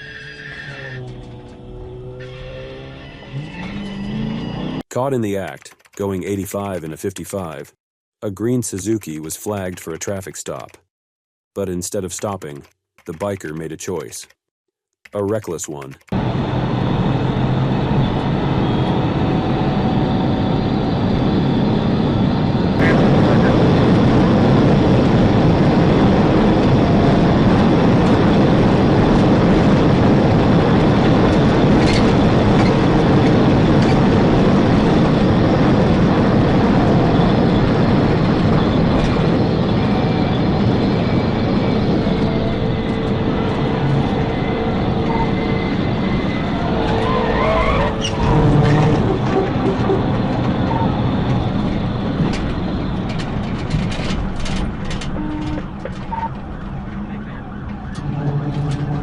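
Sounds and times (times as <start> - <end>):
car driving at high speed: 0.0 - 4.8, 16.0 - 59.0
faint police siren wailing: 36.7 - 53.1, 55.0 - 59.0.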